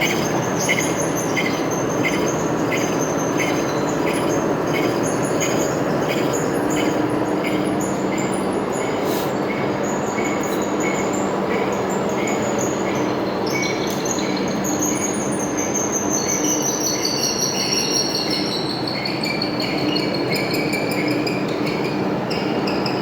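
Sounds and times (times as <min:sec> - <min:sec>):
lathe running: 0:00.0 - 0:09.0.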